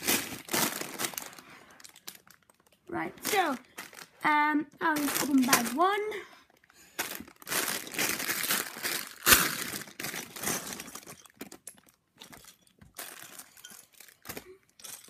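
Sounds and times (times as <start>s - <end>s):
plastic bag ripping: 0.0s - 2.6s, 5.0s - 5.8s, 7.0s - 11.2s
plastic bag crinkling: 0.0s - 15.0s.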